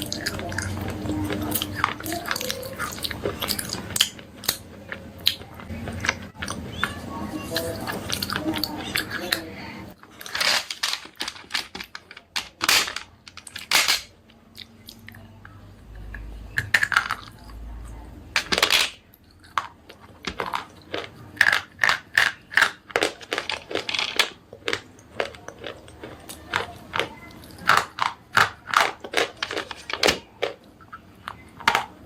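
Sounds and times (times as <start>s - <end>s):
brittle crunches of chewing: 0.0s - 9.4s, 19.1s - 31.8s.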